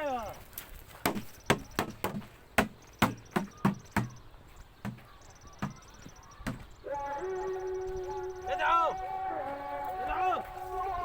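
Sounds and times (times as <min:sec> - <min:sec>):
sharp knocks: 0:01.0 - 0:04.2.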